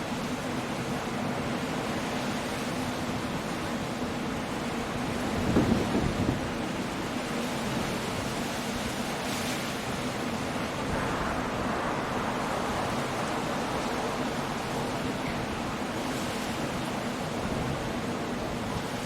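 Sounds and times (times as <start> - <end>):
rain: 0.0 - 19.0
surf: 0.0 - 19.0
wind: 0.0 - 19.0
low rumble: 10.8 - 15.8.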